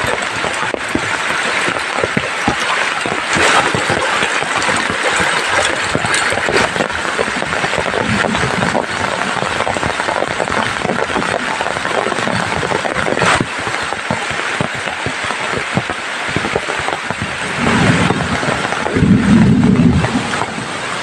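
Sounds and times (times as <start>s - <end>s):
heavy rain pattering: 0.0s - 21.0s
low rumble: 16.4s - 21.0s.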